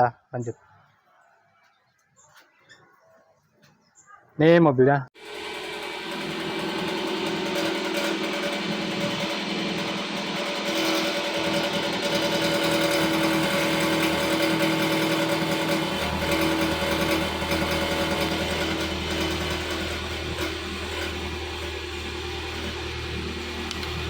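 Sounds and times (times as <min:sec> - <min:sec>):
car engine idling: 0:05.2 - 0:24.0
metallic exhaust rattle: 0:05.2 - 0:24.0
low hum: 0:05.4 - 0:24.0.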